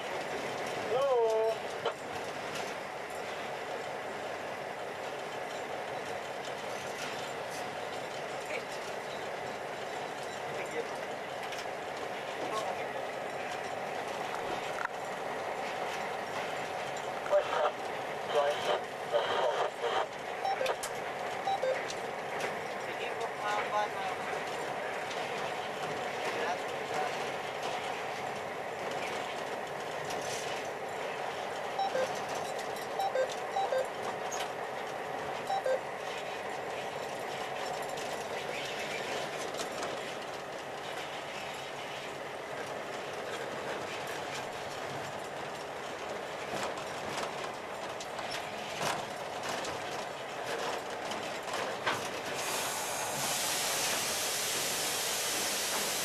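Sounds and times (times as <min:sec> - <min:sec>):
freight train rumbling: 0:00.0 - 0:56.0.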